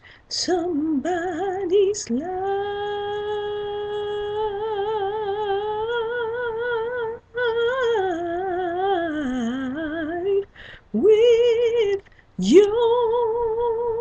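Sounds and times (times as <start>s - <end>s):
woman singing wordlessly: 0.0s - 14.0s
singer breathing in: 10.5s - 10.9s.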